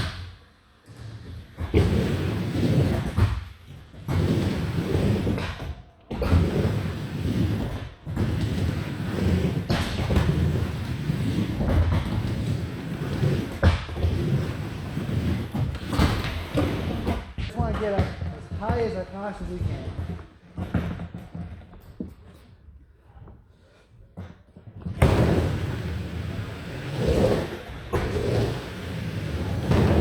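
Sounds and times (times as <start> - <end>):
skateboard wheels rolling: 0.8 - 17.6, 23.5 - 30.0.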